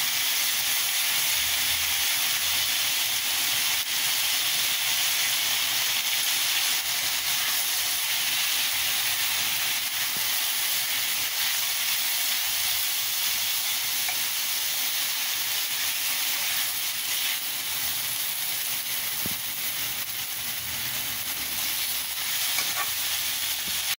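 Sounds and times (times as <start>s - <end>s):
beans sizzling in a pan: 0.0s - 24.0s
spatula stirring in metal pan: 22.3s - 24.0s.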